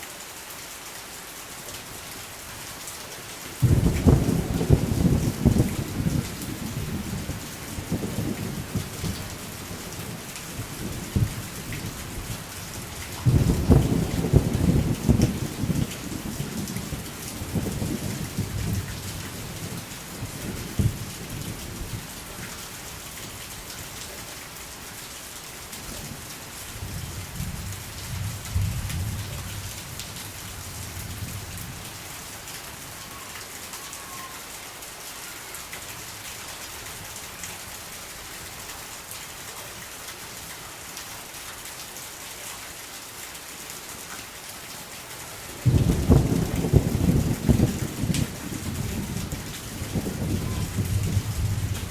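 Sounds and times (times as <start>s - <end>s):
steady rain falling: 0.0s - 51.9s
thunder rumbling: 3.6s - 12.4s, 13.2s - 22.1s, 45.6s - 51.9s.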